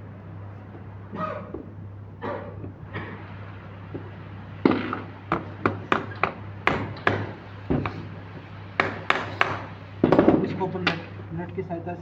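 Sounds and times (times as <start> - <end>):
steady low hum: 0.0 - 12.0
sharp taps and knocks: 3.9 - 11.2.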